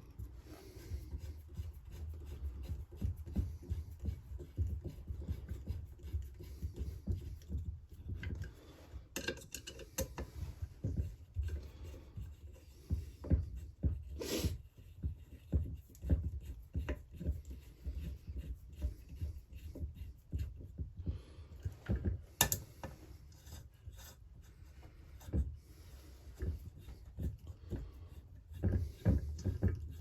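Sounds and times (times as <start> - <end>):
hand tool clicking and scraping metal: 22.4 - 22.9.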